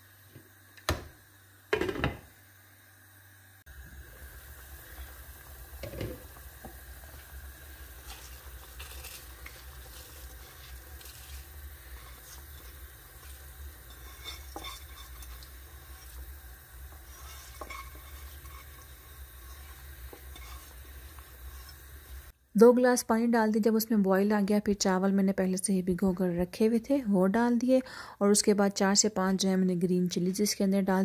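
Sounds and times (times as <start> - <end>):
spices sizzling in a pot: 0.0 - 22.4.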